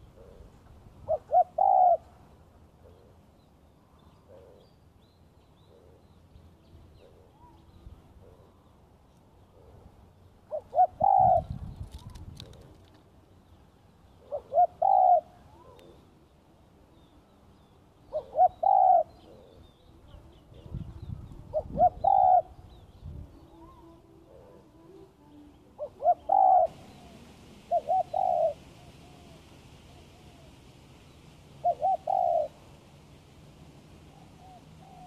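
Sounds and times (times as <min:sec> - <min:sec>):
dove cooing: 0:00.0 - 0:02.2, 0:10.5 - 0:12.9, 0:14.2 - 0:16.0, 0:18.1 - 0:20.9, 0:21.5 - 0:22.7, 0:25.8 - 0:30.7, 0:31.5 - 0:32.7, 0:34.0 - 0:35.0.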